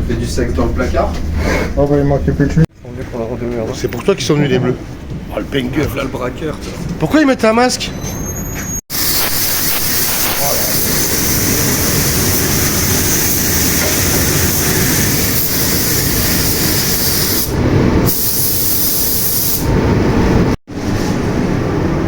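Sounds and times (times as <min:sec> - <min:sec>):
loud spraying hiss: 0:08.9 - 0:19.7.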